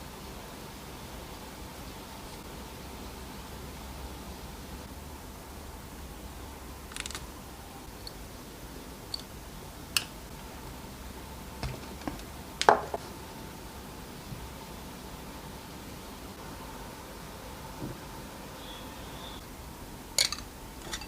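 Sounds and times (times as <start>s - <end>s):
faint steady hum: 0.0s - 21.0s
small tool parts clicking: 6.9s - 7.3s, 20.2s - 21.0s.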